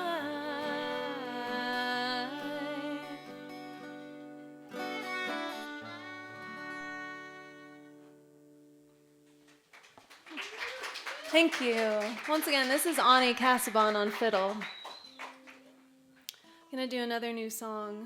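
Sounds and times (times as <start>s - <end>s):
acoustic guitar: 0.0s - 10.2s, 11.6s - 18.0s
fiddle playing folk music: 2.2s - 8.2s.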